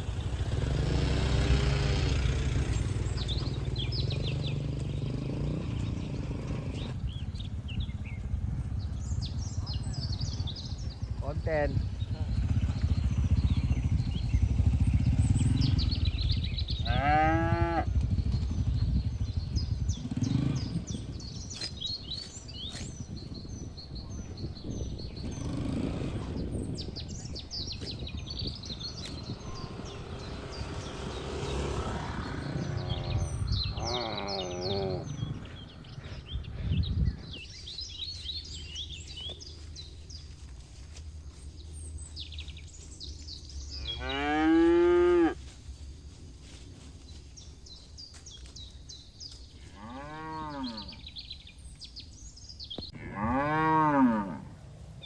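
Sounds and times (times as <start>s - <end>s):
small birds chirping: 0.0s - 55.0s
cattle mooing: 16.8s - 17.9s, 32.8s - 35.2s, 43.8s - 45.4s, 49.8s - 51.0s, 53.0s - 54.6s.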